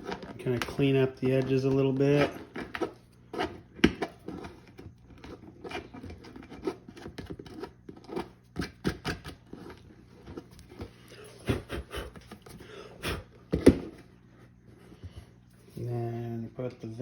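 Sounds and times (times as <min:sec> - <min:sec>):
scratching strokes on plastic: 0:01.3 - 0:10.8.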